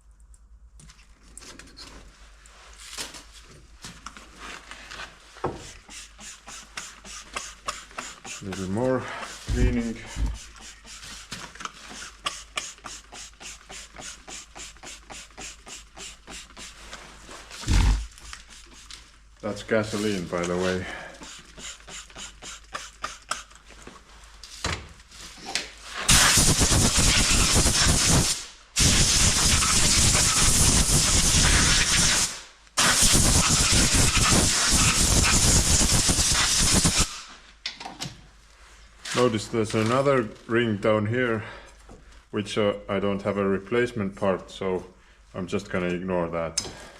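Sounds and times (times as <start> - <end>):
compressed air blowgun hissing: 5.6 - 16.9, 17.6 - 18.9, 20.8 - 23.5, 26.0 - 37.3
rapid scrubbing strokes: 5.7 - 19.0.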